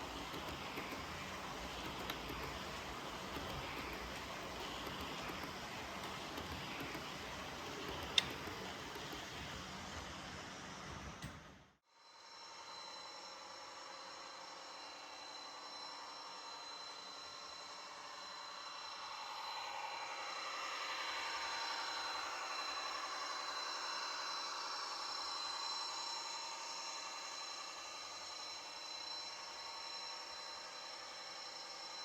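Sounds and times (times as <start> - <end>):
wheels rumbling on track: 0.0 - 11.2
model train motor whine: 0.0 - 11.6.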